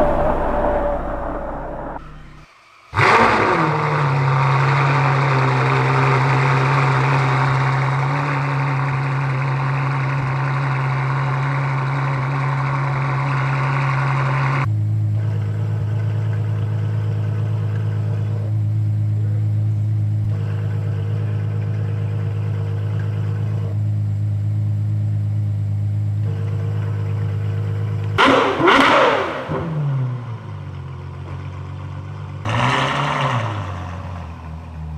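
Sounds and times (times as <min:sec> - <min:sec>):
car engine starting and idling: 0:00.0 - 0:02.4.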